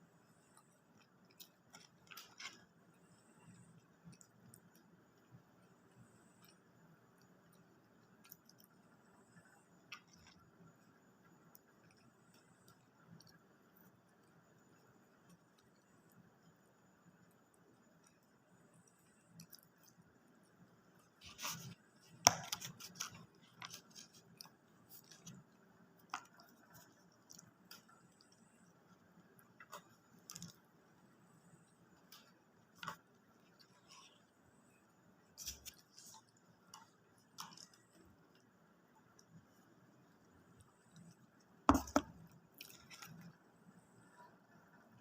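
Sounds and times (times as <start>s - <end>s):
crunching food: 18.9s - 31.0s, 40.9s - 43.4s.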